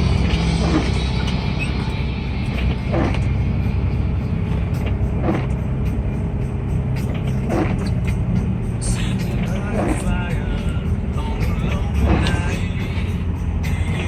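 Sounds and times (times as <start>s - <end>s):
car running: 0.0s - 14.0s
music playing: 0.0s - 14.0s.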